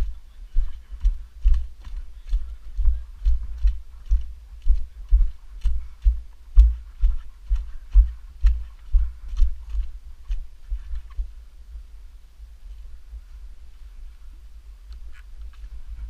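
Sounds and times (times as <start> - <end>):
regular low thumps with clicks: 0.0 - 11.9.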